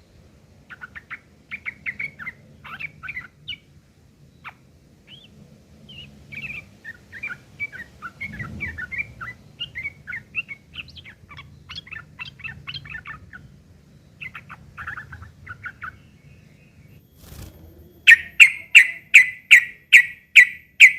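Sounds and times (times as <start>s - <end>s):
bird chattering calls: 17.9s - 20.9s.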